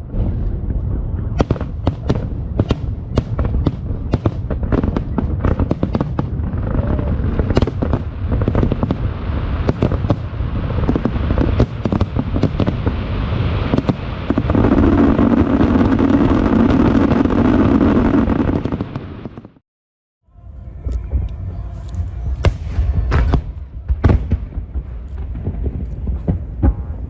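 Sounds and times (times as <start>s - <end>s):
aerial fireworks bangs and crackles: 0.0s - 19.6s, 22.0s - 27.0s.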